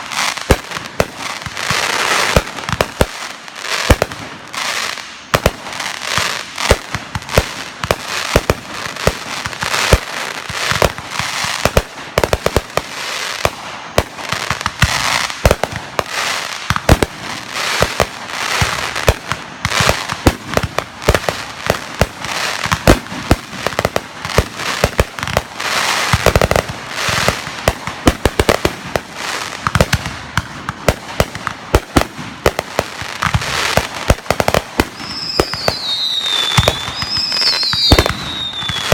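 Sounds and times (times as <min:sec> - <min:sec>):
fireworks bangs: 0:00.0 - 0:38.9
fireworks crackling: 0:00.0 - 0:38.9.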